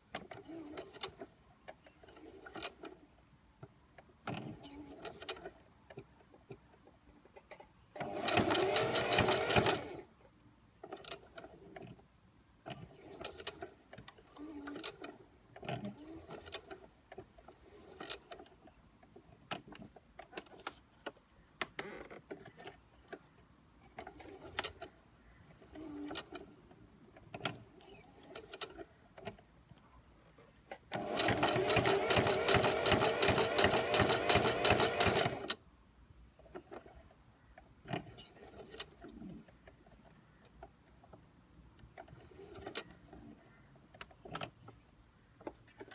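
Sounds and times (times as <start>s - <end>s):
sewing machine clicks: 8.0s - 10.0s, 30.9s - 35.6s
sewing machine stitching: 8.0s - 10.0s, 30.9s - 35.6s.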